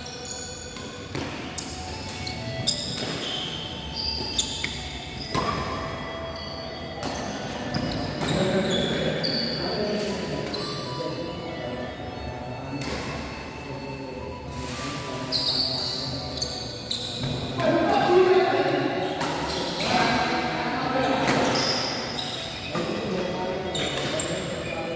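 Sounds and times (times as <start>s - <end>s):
shoes squeaking on court floor: 0.0s - 24.9s
racket hitting shuttlecock: 0.7s - 3.6s, 5.2s - 5.8s.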